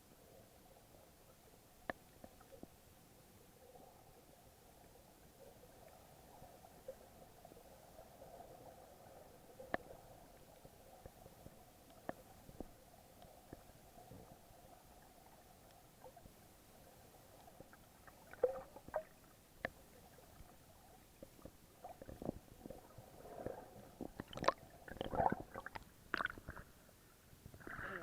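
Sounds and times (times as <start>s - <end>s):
water sloshing and gurgling: 5.6s - 28.0s.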